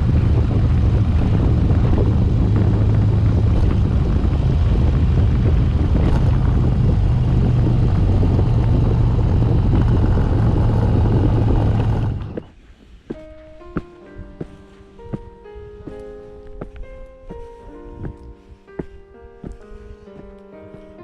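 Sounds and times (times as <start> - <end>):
motorcycle engine running: 0.0 - 12.6
wind noise: 0.0 - 13.1
soft music notes: 12.7 - 21.0.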